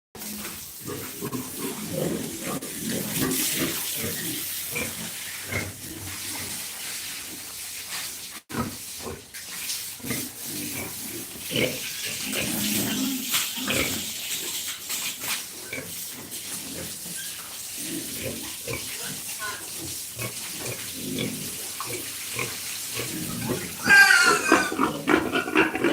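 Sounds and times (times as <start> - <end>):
pigs grunting: 0.8 - 6.5, 10.0 - 14.7, 20.2 - 25.9.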